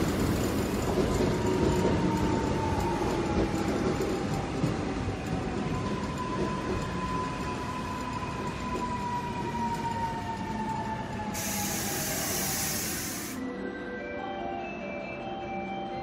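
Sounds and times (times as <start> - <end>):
electric train whine: 0.0 - 15.7
loud hiss: 11.3 - 13.4.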